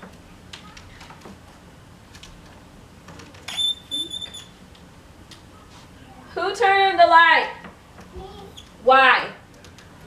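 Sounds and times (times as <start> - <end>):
high-pitched squeak: 3.5 - 4.5.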